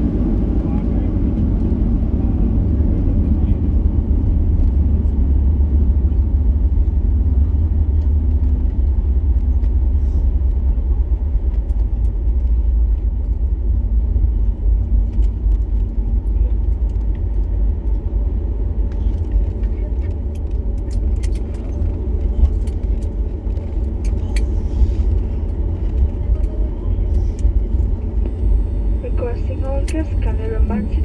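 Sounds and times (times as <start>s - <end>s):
airliner cabin rumble: 0.0s - 31.0s
faint hum: 24.1s - 31.0s.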